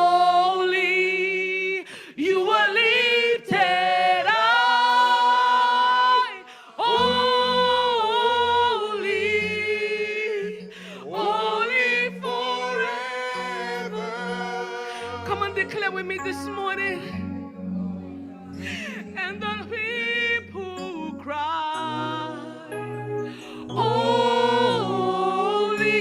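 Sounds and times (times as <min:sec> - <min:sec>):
worship singers in harmony: 0:00.0 - 0:26.0.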